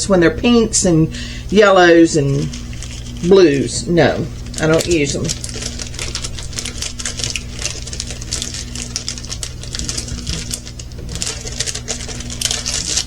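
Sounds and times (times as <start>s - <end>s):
plastic bag rustling: 0.0s - 13.0s
steady low hum: 0.0s - 13.0s
tiny plastic drills clicking and rattling: 4.5s - 13.0s.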